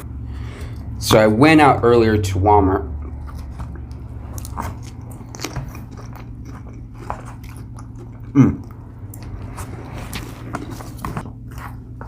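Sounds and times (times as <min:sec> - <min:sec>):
steady low hum: 0:00.0 - 0:12.0
chewing and crunching food: 0:02.8 - 0:12.0.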